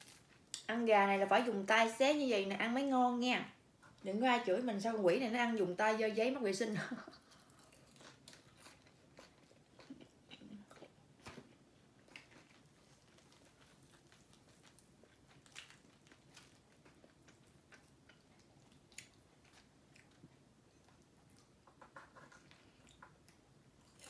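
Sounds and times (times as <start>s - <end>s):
chewing crispy fried chicken: 7.1s - 24.0s.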